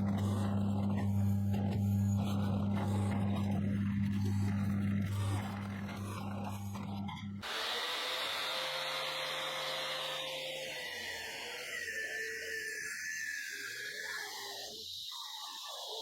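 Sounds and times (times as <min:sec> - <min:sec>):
power tool motor hum: 0:00.0 - 0:12.4
power tool high whine: 0:00.0 - 0:16.0.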